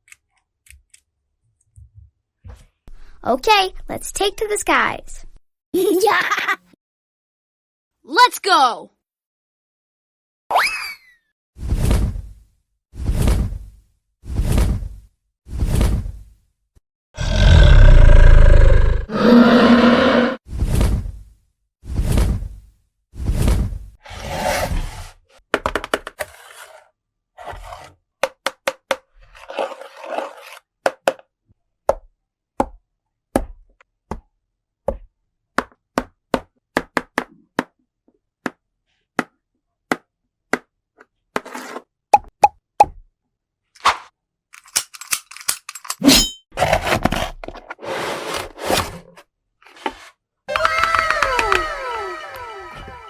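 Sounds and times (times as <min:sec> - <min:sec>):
plastic toy pieces clicking: 0:44.6 - 0:46.0, 0:50.5 - 0:51.7.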